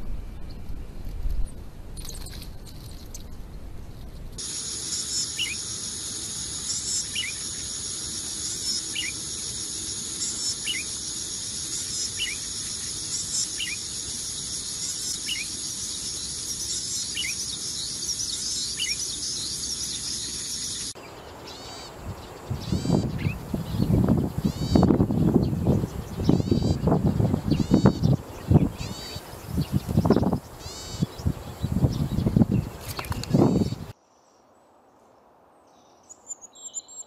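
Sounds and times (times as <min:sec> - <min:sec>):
quiet chirps: 0:01.4 - 0:22.0
bird calling sharp notes: 0:04.4 - 0:21.0
insect drone: 0:04.4 - 0:34.0.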